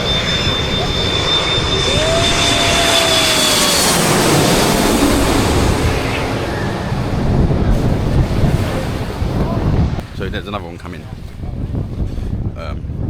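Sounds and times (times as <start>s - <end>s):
jet engine high whine: 0.0s - 10.4s
airliner engine rush: 0.0s - 13.0s.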